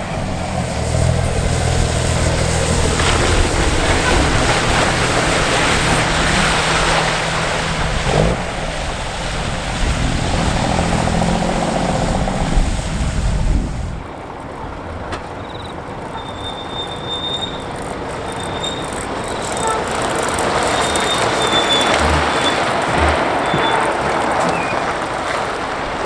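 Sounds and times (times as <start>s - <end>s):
road noise: 0.0s - 26.0s
truck diesel engine running: 0.0s - 26.0s
high-pitched squeals: 15.4s - 25.4s.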